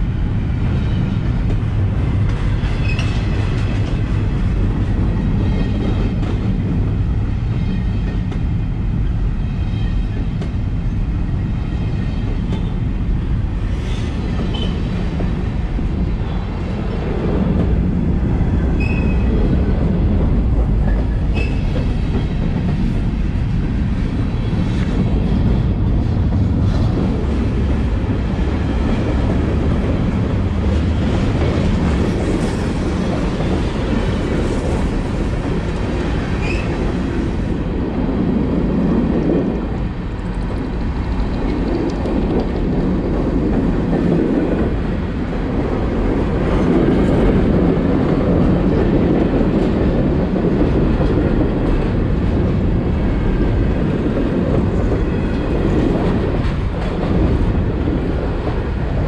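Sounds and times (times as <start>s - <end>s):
steel wheels rumbling on rails: 0.0s - 59.0s.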